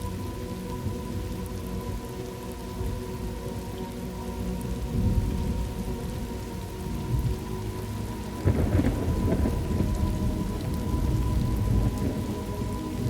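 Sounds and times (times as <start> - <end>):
rain: 0.0 - 13.0
crackling thunder: 8.3 - 13.0
rolling thunder: 8.4 - 13.0.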